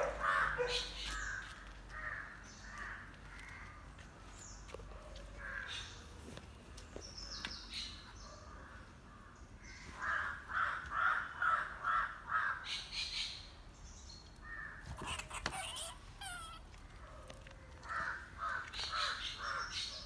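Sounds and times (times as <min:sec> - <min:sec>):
bird calling: 0:00.0 - 0:03.8, 0:14.5 - 0:20.0.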